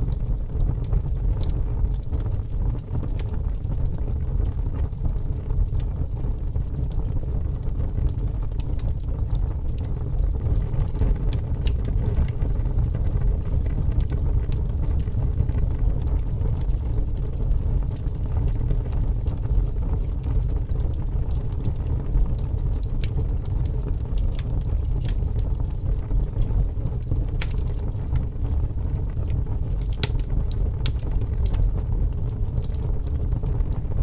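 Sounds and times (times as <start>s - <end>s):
fire crackling: 0.0s - 34.0s.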